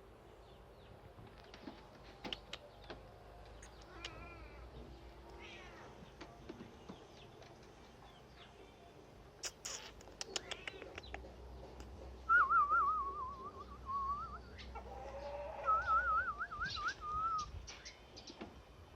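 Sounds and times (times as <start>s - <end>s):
sharp clicks: 2.2s - 3.0s, 9.5s - 11.9s.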